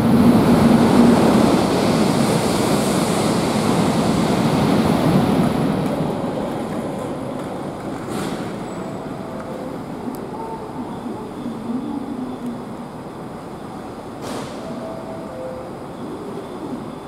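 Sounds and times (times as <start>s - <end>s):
train rushing past: 0.0s - 11.9s.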